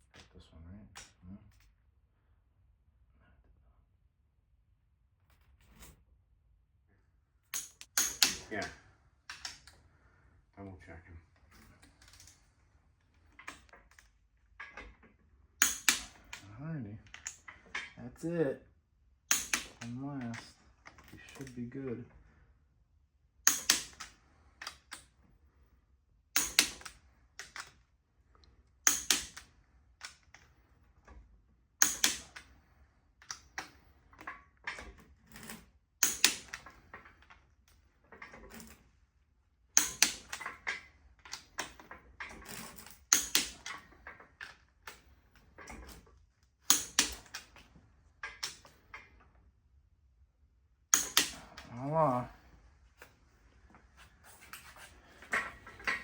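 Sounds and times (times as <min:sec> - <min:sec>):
hand tools clicking on metal: 0:07.6 - 0:09.6, 0:15.6 - 0:16.4, 0:19.3 - 0:20.5, 0:23.5 - 0:24.8, 0:26.4 - 0:27.7, 0:28.9 - 0:29.4, 0:31.8 - 0:32.5, 0:36.0 - 0:36.8, 0:39.8 - 0:40.7, 0:42.5 - 0:43.9, 0:46.7 - 0:47.5, 0:50.9 - 0:52.2.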